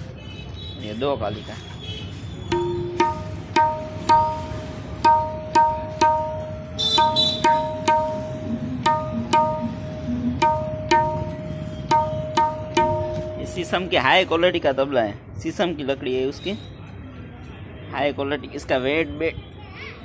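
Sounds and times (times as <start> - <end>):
tabla drum strokes: 2.5 - 14.0.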